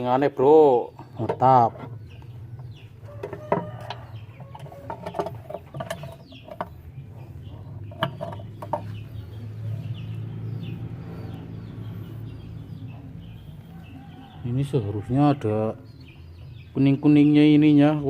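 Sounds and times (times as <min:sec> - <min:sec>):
chickens clucking: 0:00.0 - 0:17.4
clicks and knocks of hand tools: 0:03.2 - 0:06.8.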